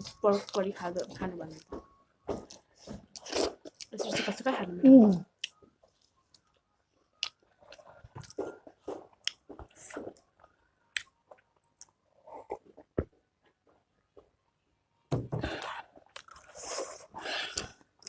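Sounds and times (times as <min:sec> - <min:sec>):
wet chewing with clicks and smacks: 0:00.0 - 0:04.2, 0:05.0 - 0:13.6, 0:15.6 - 0:16.6.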